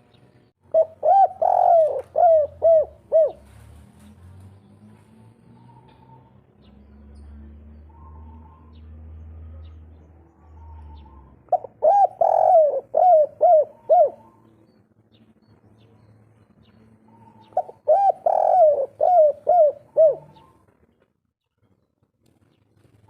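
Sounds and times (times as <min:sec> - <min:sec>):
dove cooing: 0:00.6 - 0:03.6, 0:10.4 - 0:14.5, 0:17.1 - 0:20.8.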